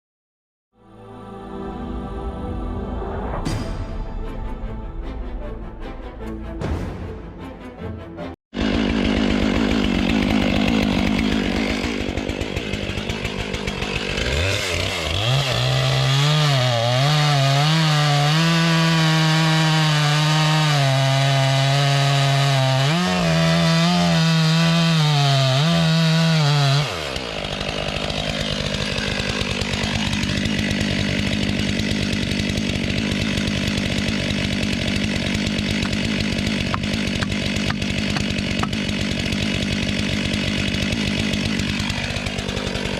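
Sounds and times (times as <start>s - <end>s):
chainsaw cutting a log: 8.6s - 42.9s.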